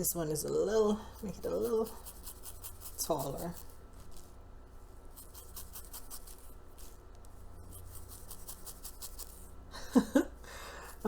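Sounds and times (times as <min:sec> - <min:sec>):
low steady hum: 0:00.0 - 0:11.0
scratchy strokes through wig hair: 0:00.3 - 0:09.6.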